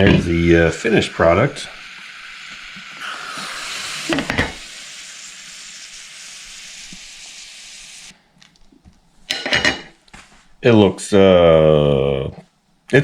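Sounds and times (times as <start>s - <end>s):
egg steamer hissing: 0.0s - 8.3s.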